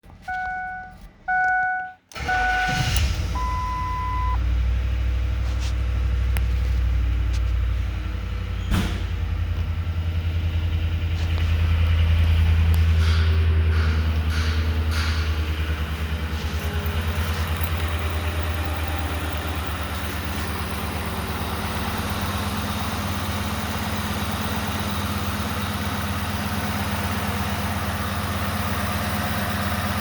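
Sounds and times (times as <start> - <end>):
car engine starting and idling: 0.0 - 30.0
electronic chime tones: 0.3 - 4.4.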